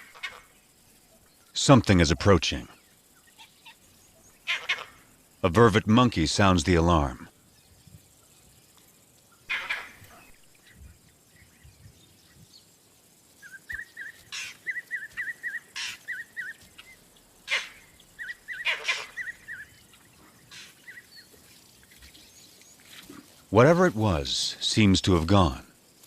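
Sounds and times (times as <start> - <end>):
monkey alarm calls: 4.4 - 5.0, 9.4 - 10.8, 13.4 - 21.3.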